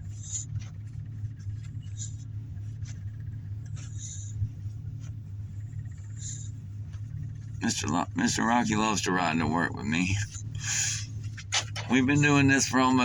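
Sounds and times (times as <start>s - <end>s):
car cabin hum: 0.0s - 13.0s
short scratchy rustles: 10.8s - 12.2s.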